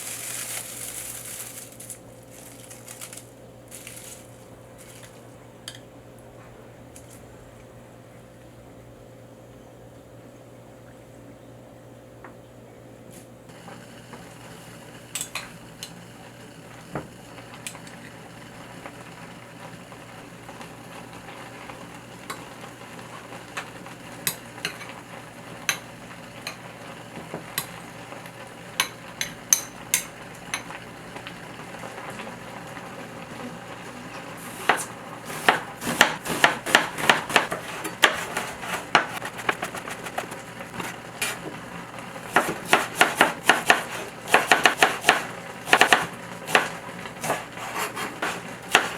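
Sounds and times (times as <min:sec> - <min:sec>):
food sizzling in a pan: 0:00.0 - 0:05.2
fast spatula strokes: 0:34.4 - 0:41.5, 0:42.3 - 0:48.9
utensil tapping: 0:34.6 - 0:41.6.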